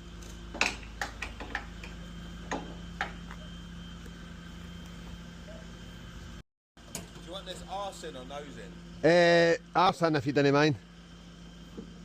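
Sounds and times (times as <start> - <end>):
sharp clicks and knocks: 0.2 - 3.4.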